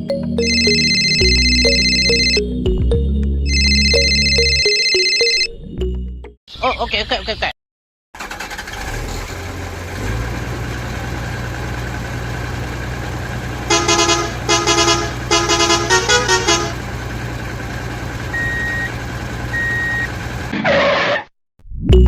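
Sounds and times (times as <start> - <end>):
truck engine running: 0.4 - 2.4, 8.2 - 20.5
truck horn toots: 13.6 - 17.2
short high beeps: 18.4 - 18.9.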